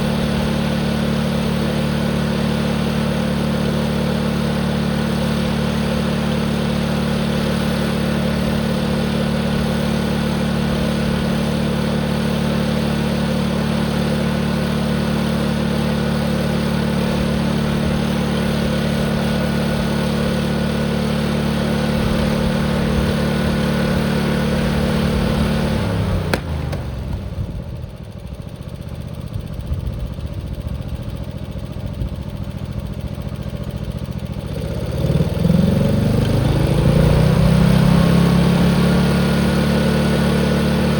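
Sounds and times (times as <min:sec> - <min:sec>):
tractor engine at full throttle: 0:00.0 - 0:40.9.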